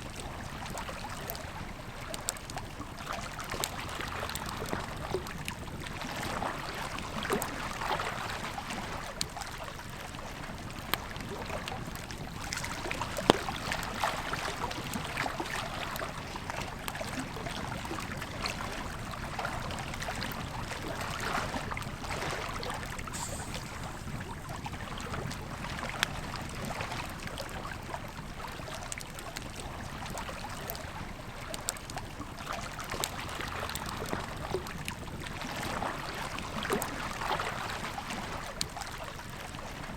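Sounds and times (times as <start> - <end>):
river flowing: 18.6 - 26.0.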